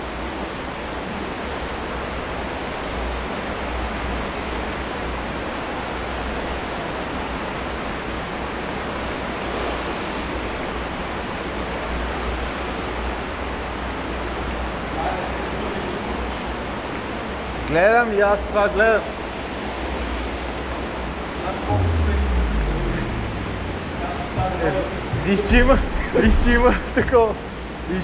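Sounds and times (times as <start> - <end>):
low rumble: 21.7 - 27.0.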